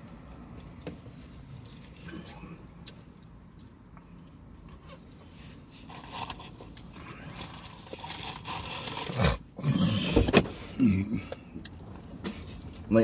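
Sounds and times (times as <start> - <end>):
person chewing sandwich: 1.5 - 10.2
crunching and crackling: 5.7 - 10.0.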